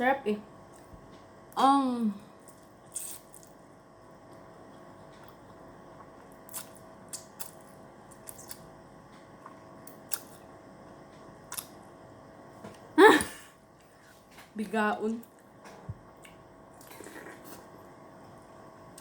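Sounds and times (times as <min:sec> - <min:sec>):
faint steady hum: 0:00.0 - 0:19.0
eating clicks and smacks: 0:06.4 - 0:08.7, 0:11.5 - 0:11.8.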